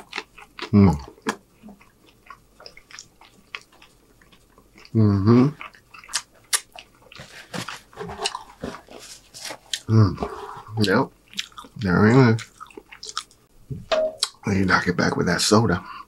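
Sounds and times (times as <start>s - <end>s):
close chewing with mouth clicks: 0.0s - 8.7s, 9.6s - 9.9s, 10.8s - 13.5s
paper napkin rustling: 7.2s - 10.6s.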